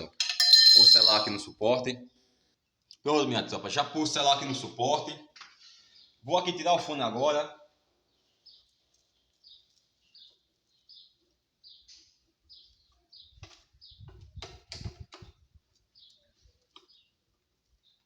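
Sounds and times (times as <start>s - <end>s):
small bird chirping: 8.1s - 14.4s, 15.3s - 18.0s.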